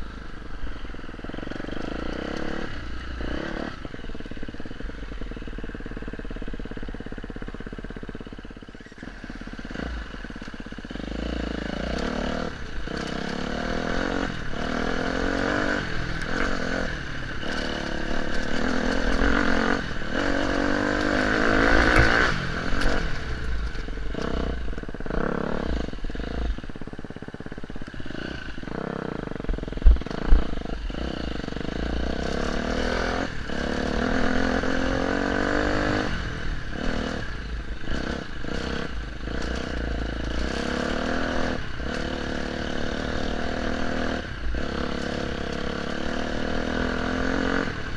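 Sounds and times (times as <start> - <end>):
motorcycle engine revving: 0.0 - 47.9
rattle: 5.6 - 28.0
sharp knocks: 21.6 - 23.0.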